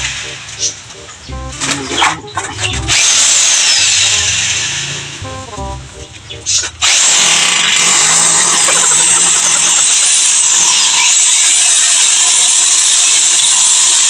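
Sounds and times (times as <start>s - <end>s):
power drill whirring: 2.9s - 4.9s, 6.8s - 14.0s.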